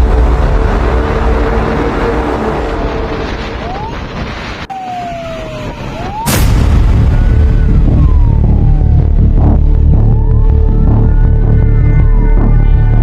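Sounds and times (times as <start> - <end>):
heavy low pulsing: 0.0 - 4.7, 6.3 - 13.0
heavy low rumble: 0.0 - 4.7, 6.2 - 13.0
sudden loud hit: 0.0 - 4.7, 6.2 - 9.5
fire truck siren wailing: 0.4 - 13.0.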